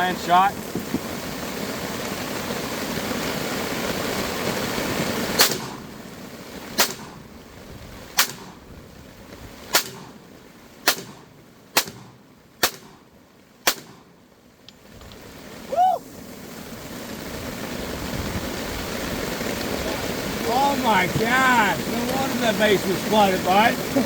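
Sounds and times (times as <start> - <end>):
rain drumming on a tarp: 0.0 - 24.0
pistol shots: 5.4 - 6.0, 6.8 - 7.3, 8.2 - 8.6, 9.7 - 10.2, 10.8 - 14.1.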